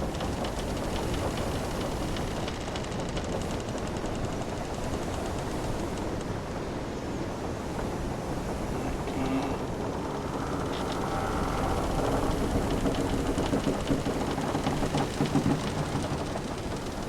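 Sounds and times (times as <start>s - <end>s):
wind: 0.0s - 17.0s
sea wash: 3.4s - 17.0s
ship timbers creaking: 7.3s - 17.0s
hull clicks and knocks: 7.7s - 17.0s.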